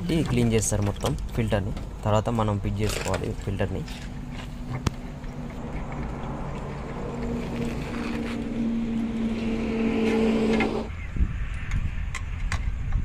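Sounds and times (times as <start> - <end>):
low rumble: 3.9 - 11.1
machine hum with hiss: 9.0 - 10.9.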